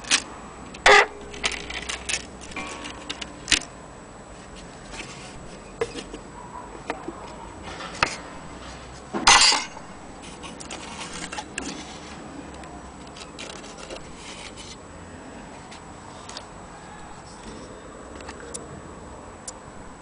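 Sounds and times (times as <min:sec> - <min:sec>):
clock parts clicking and clinking: 0:00.0 - 0:03.7.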